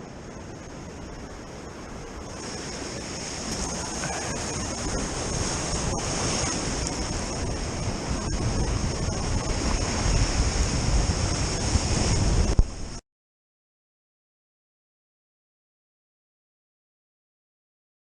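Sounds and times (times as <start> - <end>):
surf washing against rocks: 0.0 - 13.0
wind buffeting microphone: 0.0 - 13.0.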